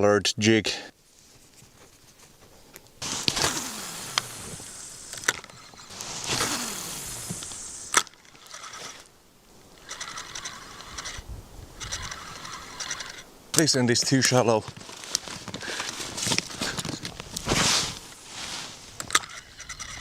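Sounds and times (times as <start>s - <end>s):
fishing line whirring off spool: 3.0s - 9.1s, 9.8s - 11.2s, 11.8s - 13.3s, 18.9s - 20.0s
fishing reel cranking: 3.0s - 9.1s, 9.8s - 11.2s, 11.8s - 13.3s, 19.1s - 20.0s.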